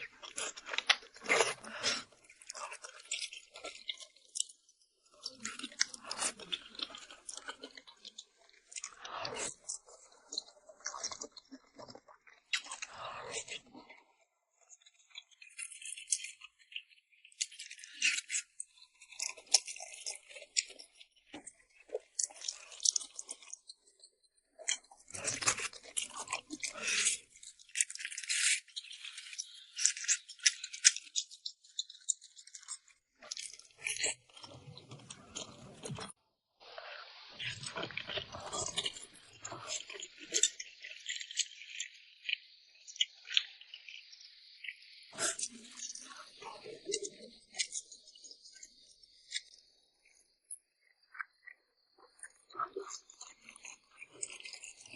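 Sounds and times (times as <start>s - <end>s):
chewing noodles: 0.0s - 36.2s, 36.8s - 50.6s, 51.2s - 54.9s
crisp mouth clicks: 17.4s - 23.8s, 24.6s - 36.2s, 37.4s - 41.6s, 45.1s - 48.0s.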